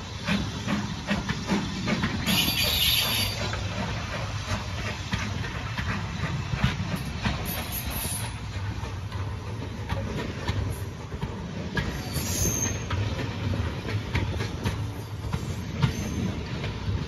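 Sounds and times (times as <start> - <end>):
train rolling rumble: 0.0 - 17.0
train wheels clicking over rail joints: 0.0 - 17.0
high wheel squeal: 2.2 - 3.5, 11.9 - 12.9, 15.8 - 16.4.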